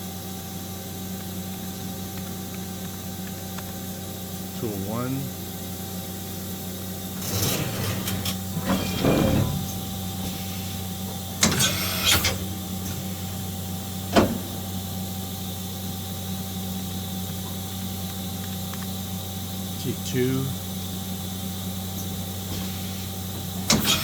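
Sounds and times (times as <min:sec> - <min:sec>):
machine running hum: 0:00.0 - 0:24.0
tool changer whirring and clunking: 0:07.1 - 0:16.0, 0:20.0 - 0:24.0.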